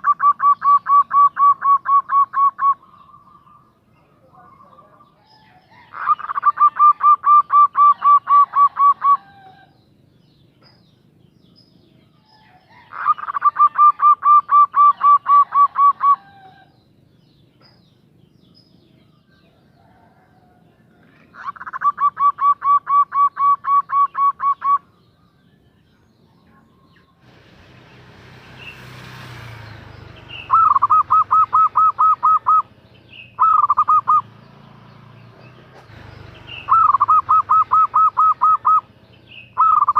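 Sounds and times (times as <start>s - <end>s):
dove cooing: 0.0s - 3.8s, 4.4s - 9.7s, 12.4s - 16.8s, 19.8s - 24.9s, 30.3s - 34.3s, 35.9s - 39.9s.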